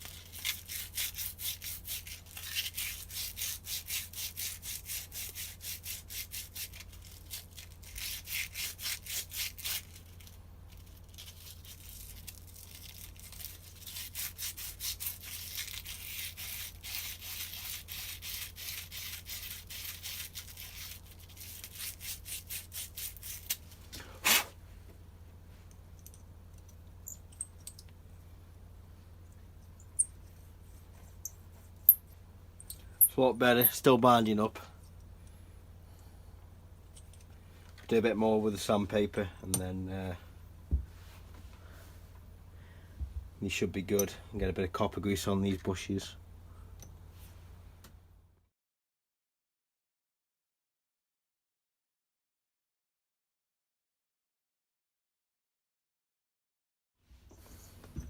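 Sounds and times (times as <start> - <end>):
sandpaper scraping: 0.0 - 24.6.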